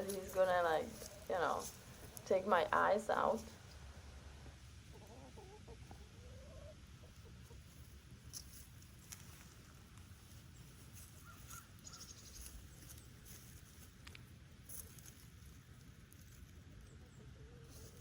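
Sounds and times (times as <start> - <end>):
faint high bird chirps: 11.2 - 12.5.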